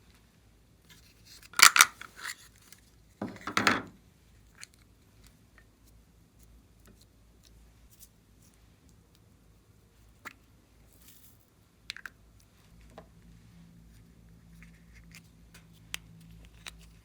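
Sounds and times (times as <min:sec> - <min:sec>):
small hard objects clicking: 0:01.6 - 0:02.0.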